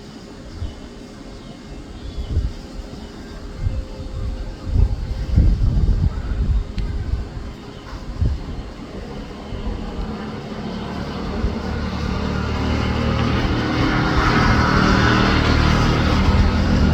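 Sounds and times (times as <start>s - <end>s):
vehicle engine approaching: 4.6s - 16.9s.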